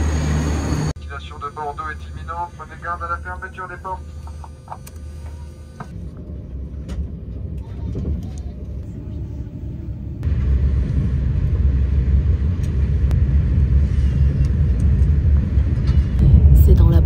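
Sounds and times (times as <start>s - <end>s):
train rumbling inside carriage: 5.8s - 17.0s.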